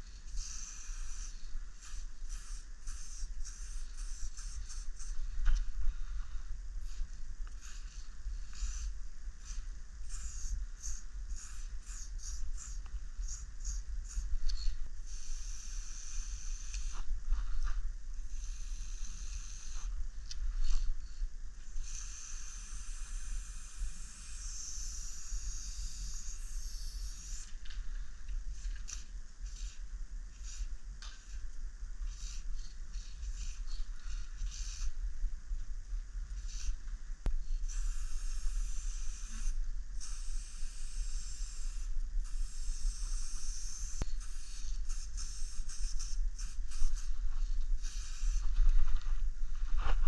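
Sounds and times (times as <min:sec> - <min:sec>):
spray paint can hissing: 0:00.3 - 0:05.2, 0:07.6 - 0:17.0, 0:18.3 - 0:19.9, 0:21.8 - 0:27.6, 0:29.4 - 0:31.4, 0:32.1 - 0:32.4, 0:33.0 - 0:34.9, 0:36.4 - 0:36.8, 0:37.6 - 0:47.2, 0:47.8 - 0:48.6.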